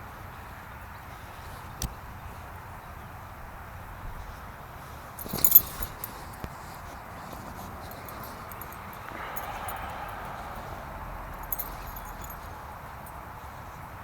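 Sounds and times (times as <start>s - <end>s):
small metal clinks jingling: 5.1s - 13.5s.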